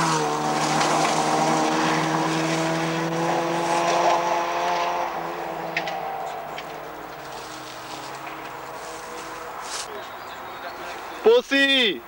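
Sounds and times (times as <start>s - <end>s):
rally car engine running hard: 0.0s - 8.8s.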